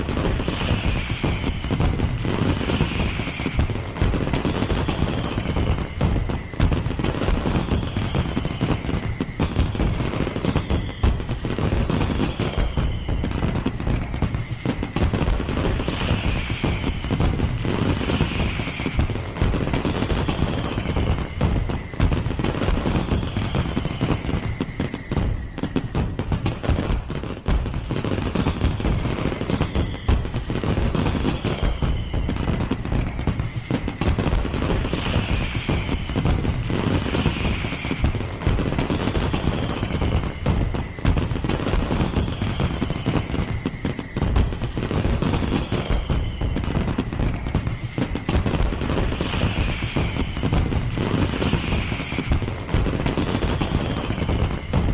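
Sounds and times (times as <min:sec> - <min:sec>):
falling firework whistles: 0:00.0 - 0:54.9
fireworks crackling bangs: 0:00.0 - 0:54.9.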